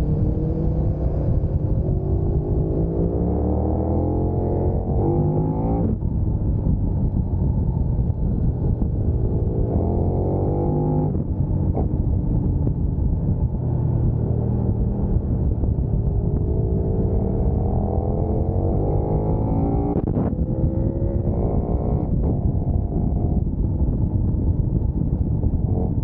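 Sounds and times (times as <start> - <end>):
motorcycle engine revving: 0.0 - 6.0, 8.7 - 11.9, 13.7 - 23.5.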